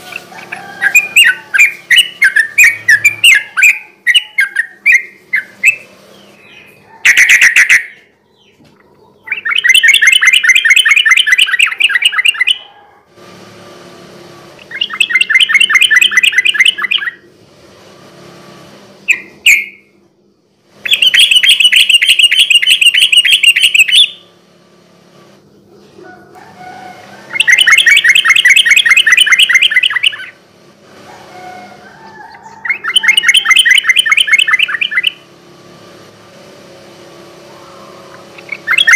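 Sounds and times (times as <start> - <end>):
bird singing rolling notes: 0.0 - 12.7, 14.2 - 17.5, 18.1 - 38.9.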